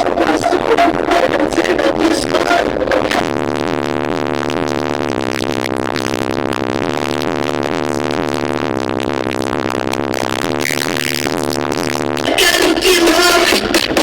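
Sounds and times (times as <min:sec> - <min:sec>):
loud music from car audio: 0:00.0 - 0:05.3, 0:12.0 - 0:14.0
low bass tones: 0:00.0 - 0:14.0.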